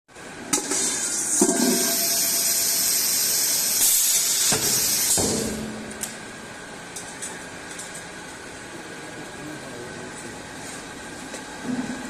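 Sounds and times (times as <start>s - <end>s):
welding machine high hiss: 1.8s - 5.2s.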